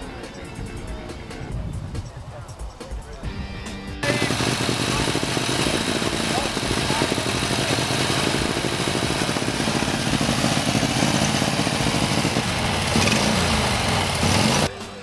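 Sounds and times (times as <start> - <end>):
racing car engine idling fast: 4.0 - 14.7.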